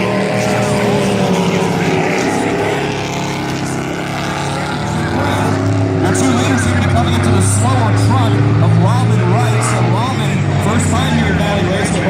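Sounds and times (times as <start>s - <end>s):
racing truck engines: 0.0s - 12.0s.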